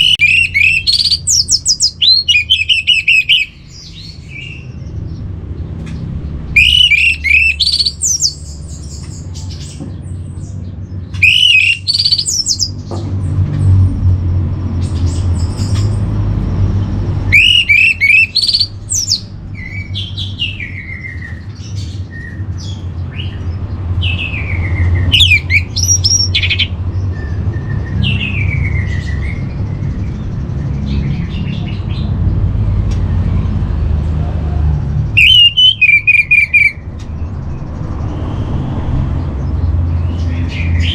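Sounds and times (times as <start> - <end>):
thrush singing: 17.1 - 21.3.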